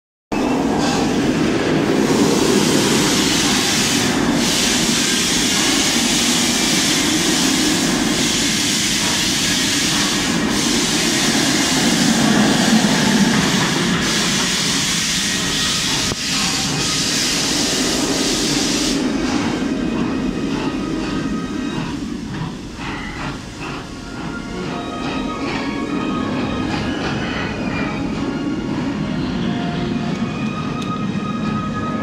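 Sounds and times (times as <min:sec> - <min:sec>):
ride train rumbling on track: 0:00.3 - 0:32.0
hiss: 0:00.8 - 0:24.8.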